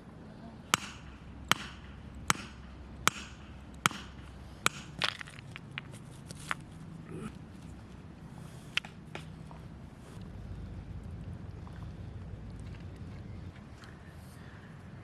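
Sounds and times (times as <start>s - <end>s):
chopping strokes: 0.7s - 5.0s.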